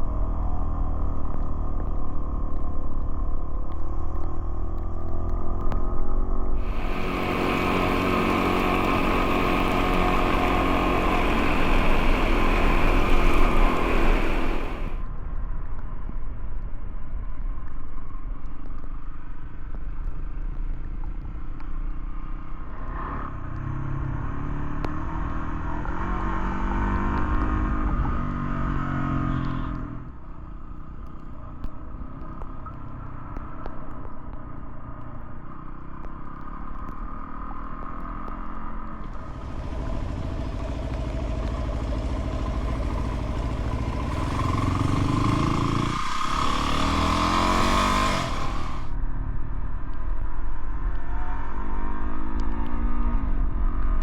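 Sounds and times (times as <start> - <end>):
loud hiss: 6.6 - 15.0, 39.2 - 48.9
motorcycle engine revving: 6.6 - 15.0, 39.1 - 49.0.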